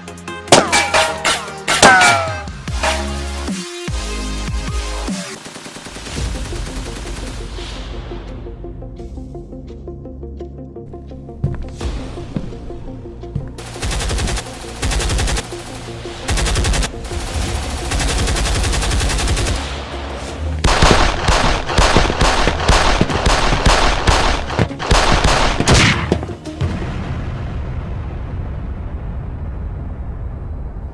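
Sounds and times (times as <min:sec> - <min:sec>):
background music: 0:00.0 - 0:27.5
automatic gunfire bursts: 0:13.6 - 0:15.7, 0:16.3 - 0:19.6, 0:20.7 - 0:26.1.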